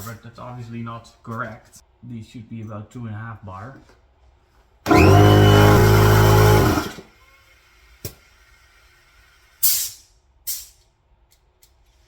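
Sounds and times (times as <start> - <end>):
electric air compressor humming: 4.9 - 7.1.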